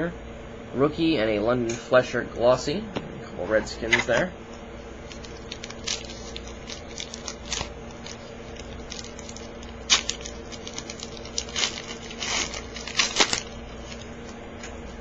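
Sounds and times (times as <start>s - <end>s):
steady low hum: 0.0s - 15.0s
wrapper crinkling and tearing: 5.0s - 14.4s.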